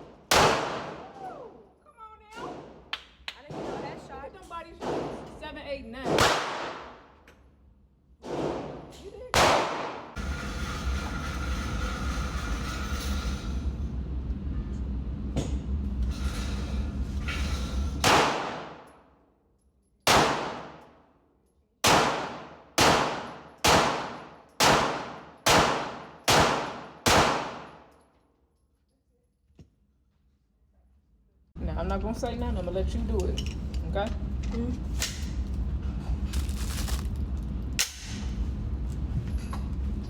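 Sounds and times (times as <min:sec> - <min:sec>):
steady low hum: 0:00.0 - 0:19.1, 0:21.8 - 0:28.0, 0:31.2 - 0:40.0
handgun shots ringing: 0:00.3 - 0:01.0, 0:06.2 - 0:07.0, 0:09.4 - 0:10.1, 0:18.0 - 0:18.9, 0:20.1 - 0:20.8, 0:21.8 - 0:27.9.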